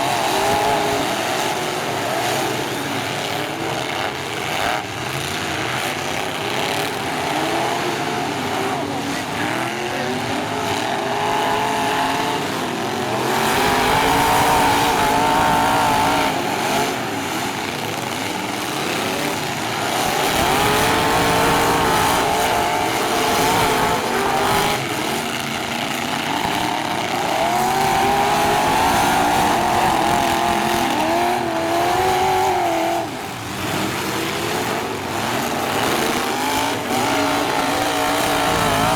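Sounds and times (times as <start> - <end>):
truck engines revving: 0.0 - 38.9.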